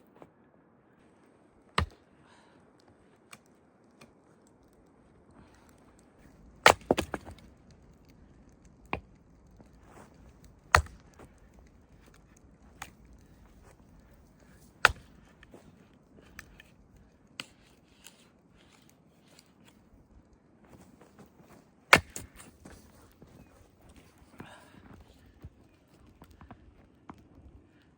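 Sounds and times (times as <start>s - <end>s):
axe chopping wood: 1.8s - 2.0s, 6.6s - 7.5s, 10.7s - 11.3s, 14.8s - 15.6s, 21.9s - 22.8s
wood splitting cracks: 1.8s - 2.0s, 5.4s - 16.8s, 20.7s - 23.3s.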